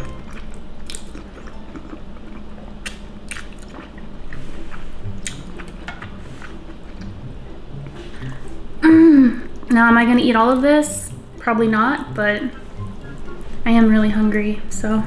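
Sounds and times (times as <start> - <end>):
person chewing: 0.0 - 7.2.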